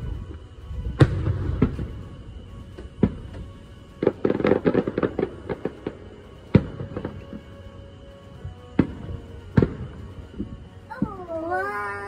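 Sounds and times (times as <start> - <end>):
rapid firework crackling: 0.8 - 7.5
firework shells booming: 0.9 - 2.1, 8.7 - 11.1.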